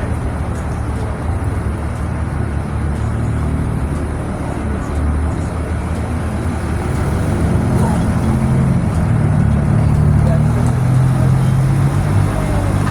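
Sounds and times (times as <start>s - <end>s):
diesel truck engine running: 0.0s - 12.9s
road noise: 0.0s - 12.9s.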